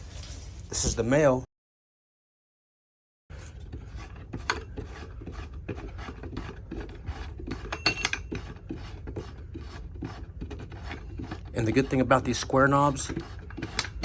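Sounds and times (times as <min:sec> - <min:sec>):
rubbing and scraping handling noise: 0:00.0 - 0:01.2, 0:03.3 - 0:14.0
metallic clink: 0:07.7 - 0:08.3.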